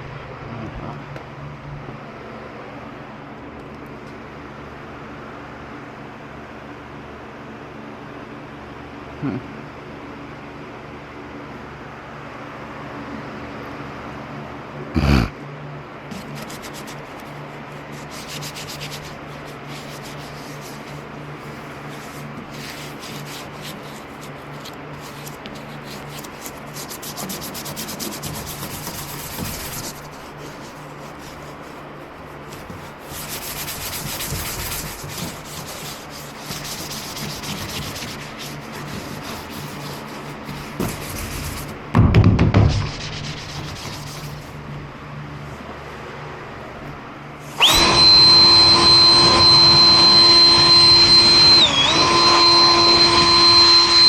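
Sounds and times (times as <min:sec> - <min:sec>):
sanding rasping strokes: 0:16.1 - 0:41.7, 0:42.9 - 0:44.5.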